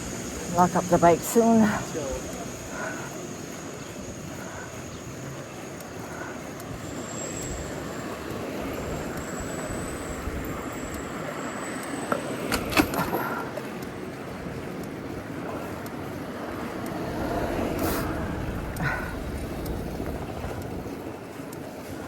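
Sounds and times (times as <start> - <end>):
city street traffic: 0.0 - 22.0
wind noise: 16.4 - 22.0.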